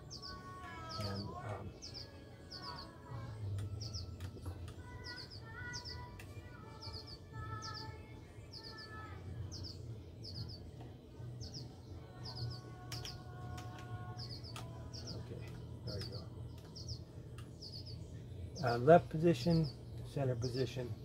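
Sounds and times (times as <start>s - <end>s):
small bird chirping: 0.0s - 20.9s.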